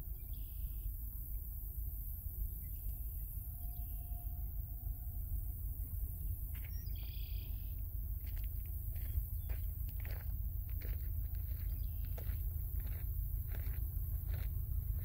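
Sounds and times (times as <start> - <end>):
low outdoor rumble: 0.0 - 15.0
faint bird chirps: 6.6 - 7.8.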